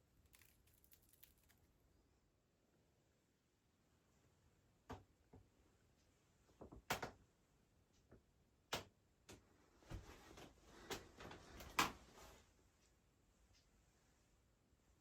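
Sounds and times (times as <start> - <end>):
soft handling noise: 9.3 - 14.4.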